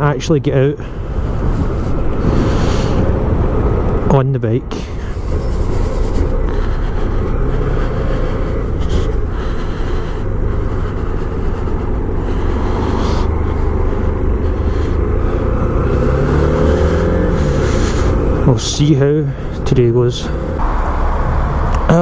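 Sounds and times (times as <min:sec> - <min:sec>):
motorcycle engine rumbling: 0:00.0 - 0:22.0.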